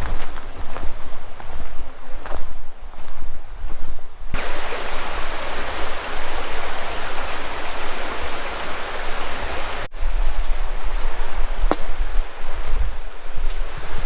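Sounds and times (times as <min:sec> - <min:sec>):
rushing river water: 0:04.4 - 0:14.0.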